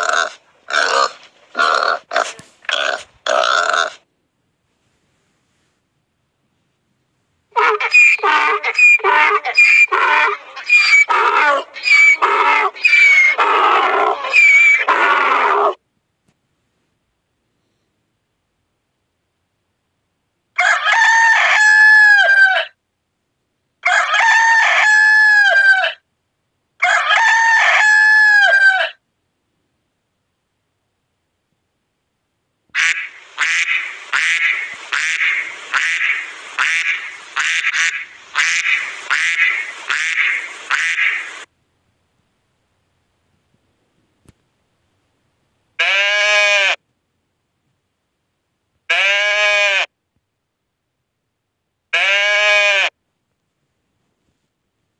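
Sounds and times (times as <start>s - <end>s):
donkey braying: 0.0s - 4.1s, 7.5s - 15.8s, 32.8s - 41.5s
duck quacking: 7.5s - 15.0s, 32.8s - 41.5s.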